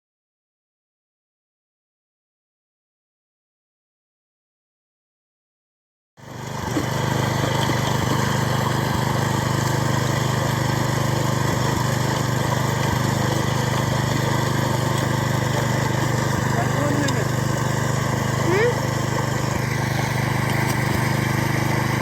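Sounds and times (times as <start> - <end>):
small engine running steadily: 6.2 - 22.0.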